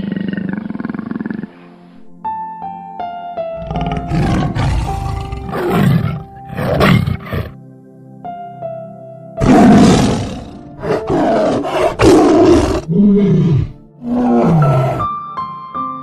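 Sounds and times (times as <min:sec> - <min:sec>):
large animal roaring: 0:00.0 - 0:01.5, 0:03.6 - 0:07.6, 0:09.4 - 0:15.1
soft background music: 0:00.0 - 0:16.0.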